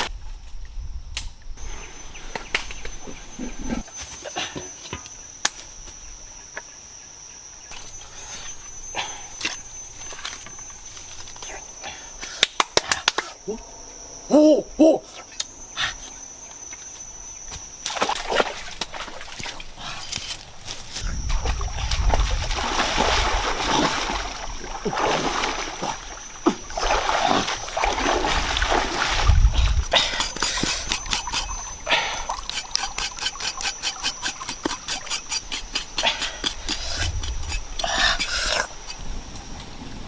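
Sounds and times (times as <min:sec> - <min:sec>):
thin high-pitched tone: 0:07.6 - 0:12.3, 0:13.4 - 0:19.2, 0:29.9 - 0:39.0
water splashing and sloshing: 0:17.8 - 0:33.7.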